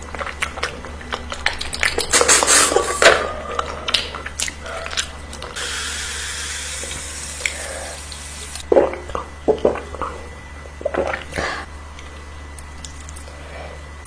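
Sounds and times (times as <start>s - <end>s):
person chewing food: 0.0s - 5.6s, 8.6s - 13.8s
steady rushing hiss: 5.6s - 8.6s.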